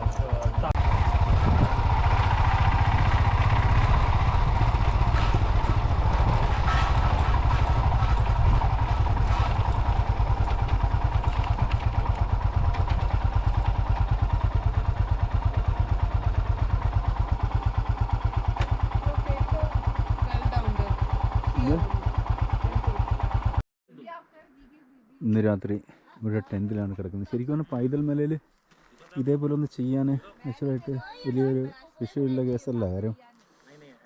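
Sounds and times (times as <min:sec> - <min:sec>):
motorcycle engine thumping: 0:00.0 - 0:23.6.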